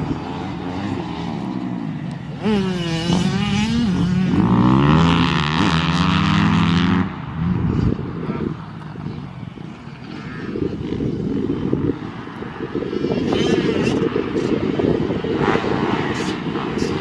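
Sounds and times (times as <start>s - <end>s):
dirt bike engine revving: 0.0s - 7.9s, 15.1s - 17.0s.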